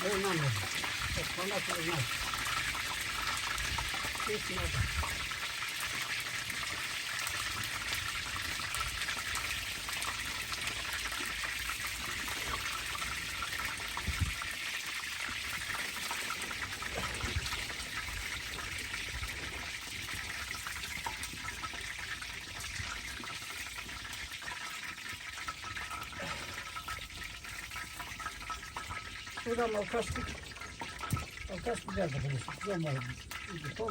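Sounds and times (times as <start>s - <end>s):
steady rain falling: 0.0s - 2.3s, 4.2s - 4.8s, 26.2s - 26.6s.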